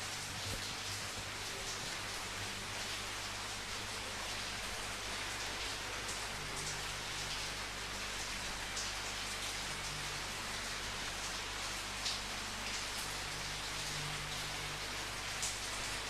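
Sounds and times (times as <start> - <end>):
rain hiss: 0.0 - 16.0.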